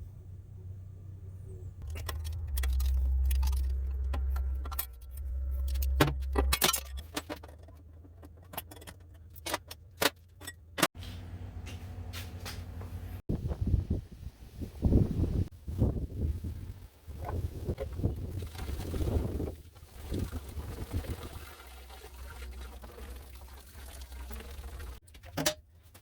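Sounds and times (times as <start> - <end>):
low hum: 0.0 - 9.3
metal tools clinking: 1.8 - 10.9.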